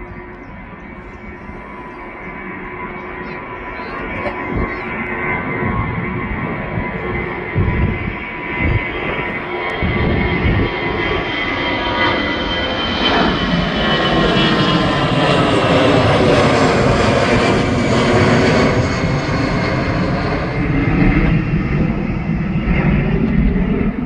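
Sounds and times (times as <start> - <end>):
airliner engines roaring: 0.0 - 24.0.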